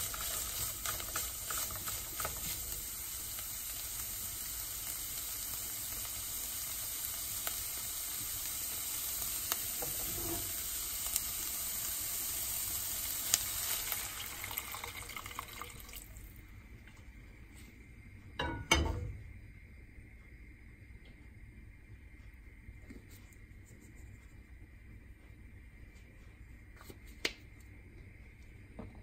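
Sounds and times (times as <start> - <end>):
sharp pops of frying: 0.0 - 11.6, 12.7 - 15.2, 18.4 - 19.4
chicken sizzling in a wok: 0.0 - 16.6
stock pouring: 13.8 - 16.4.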